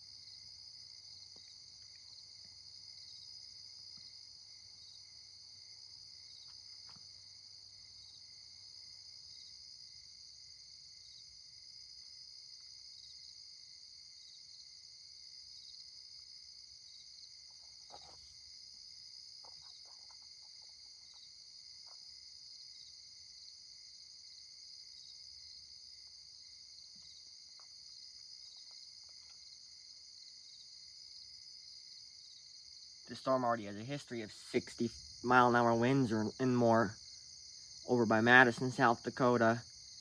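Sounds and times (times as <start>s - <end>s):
crickets trilling: 0.0s - 40.0s
faint ticks: 26.9s - 29.6s.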